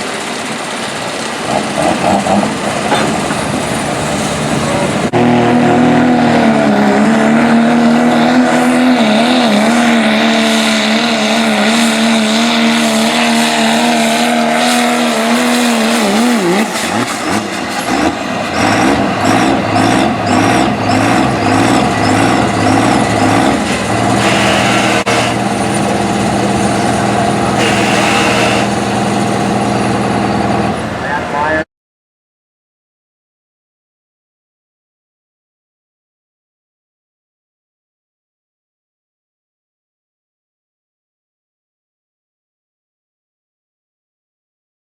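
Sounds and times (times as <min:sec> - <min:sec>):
diesel truck engine revving: 0:00.0 - 0:31.6.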